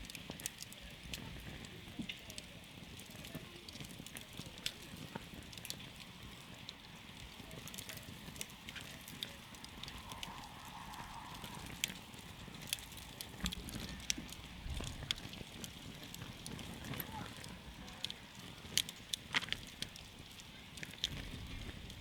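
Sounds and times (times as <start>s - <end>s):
campfire crackling and popping: 0.0s - 22.0s
fire hissing: 0.0s - 22.0s.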